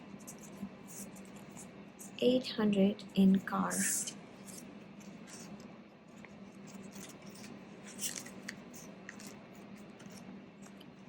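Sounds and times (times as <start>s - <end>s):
paper rustling: 4.4s - 11.0s.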